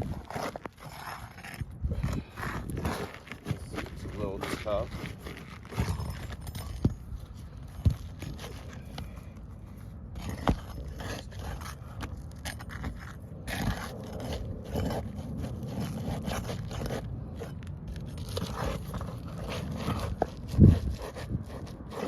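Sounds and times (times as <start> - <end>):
scraping on roof shingles: 0.0 - 22.0.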